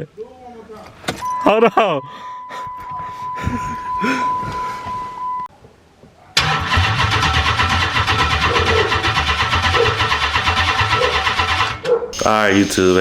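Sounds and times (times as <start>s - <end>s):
engine cranking on starter: 6.4s - 13.0s.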